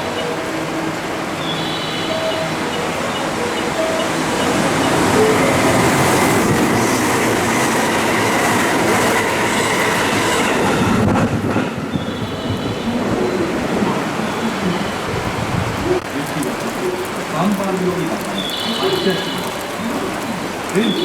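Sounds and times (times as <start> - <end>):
train wheels rumbling over rails: 2.1 - 16.5.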